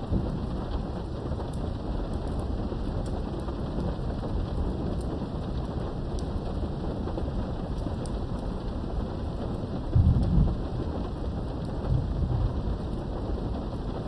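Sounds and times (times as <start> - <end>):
thunder rumbling: 0.0 - 2.7, 6.7 - 14.0
heavy rain: 0.0 - 14.0.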